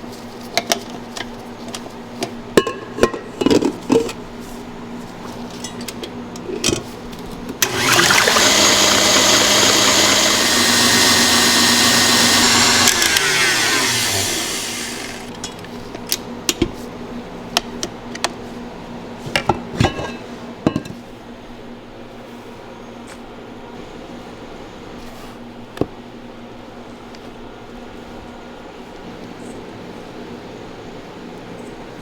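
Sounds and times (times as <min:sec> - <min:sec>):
motor appliance running: 0:07.6 - 0:15.4
motor winding down: 0:07.6 - 0:15.4.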